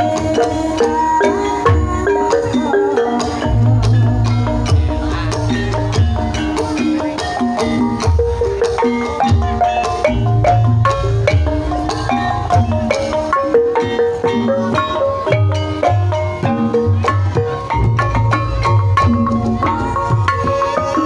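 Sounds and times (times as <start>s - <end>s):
mallet-struck keyed notes: 0.0s - 21.0s
low drum strokes: 1.6s - 21.0s.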